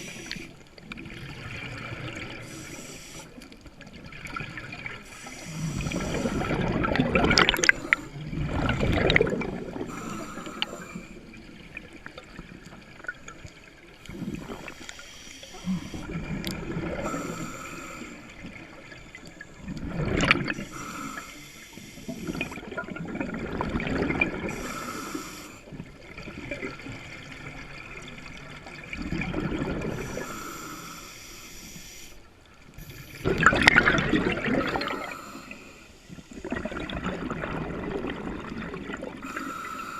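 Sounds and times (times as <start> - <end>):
exhaled bubbles rumbling: 0.0 - 2.6, 3.7 - 14.8, 15.6 - 17.5, 18.3 - 20.7, 22.1 - 24.8, 25.8 - 30.3, 32.7 - 35.3, 36.3 - 39.4.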